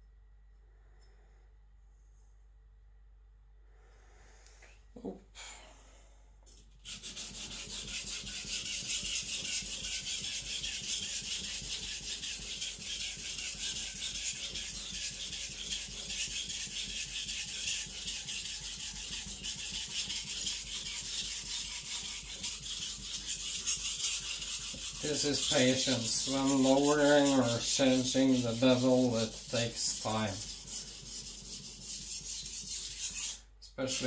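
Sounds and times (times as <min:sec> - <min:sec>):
knife grinding on wet whetstone: 0:06.8 - 0:34.0.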